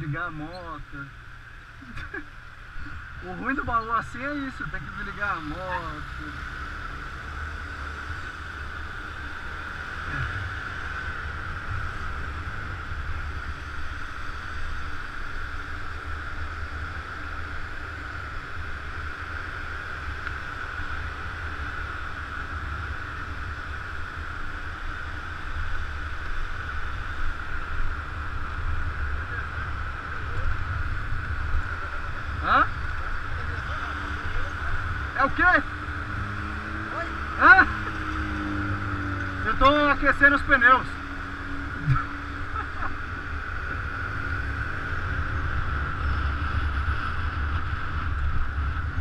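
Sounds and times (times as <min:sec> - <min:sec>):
constant hum: 0:00.0 - 0:49.0
wind rumble on microphone: 0:37.8 - 0:49.0.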